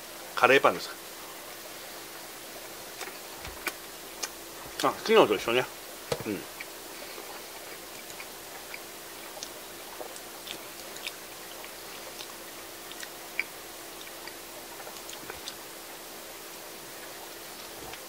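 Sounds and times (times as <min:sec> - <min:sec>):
person chewing bread: 0:02.6 - 0:05.1, 0:06.2 - 0:16.0, 0:17.0 - 0:18.0.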